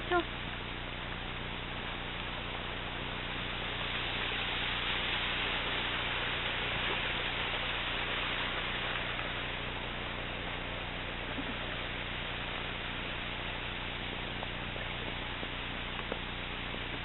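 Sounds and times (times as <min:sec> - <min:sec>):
low steady hum: 0:00.0 - 0:17.0
river water rushing: 0:00.0 - 0:17.0.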